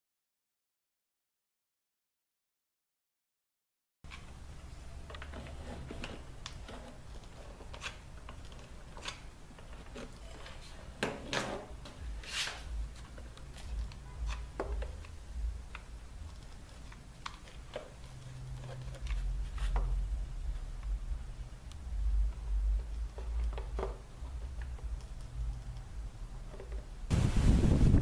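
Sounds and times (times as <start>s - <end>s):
scraping rustle: 5.1s - 14.5s.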